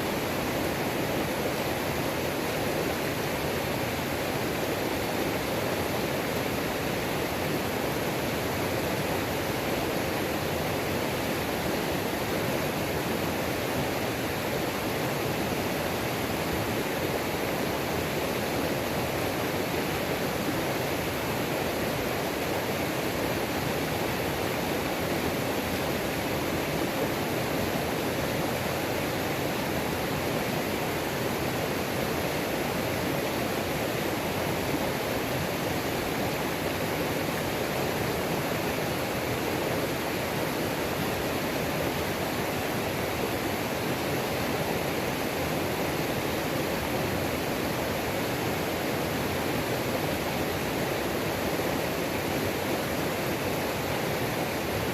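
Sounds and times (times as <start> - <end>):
waterfall splashing over rocks: 0.0 - 54.9.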